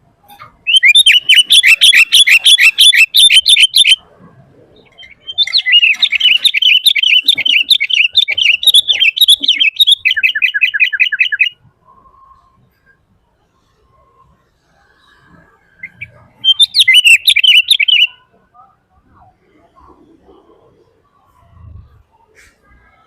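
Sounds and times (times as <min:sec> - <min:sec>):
bulbul singing: 0:00.3 - 0:04.0, 0:04.8 - 0:11.6, 0:15.8 - 0:18.3.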